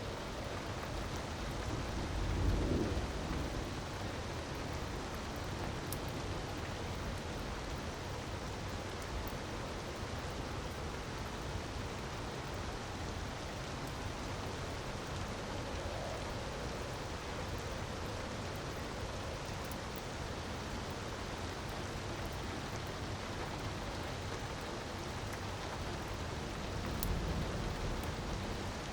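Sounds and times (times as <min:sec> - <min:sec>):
wood fire crackling: 0:13.9 - 0:28.9.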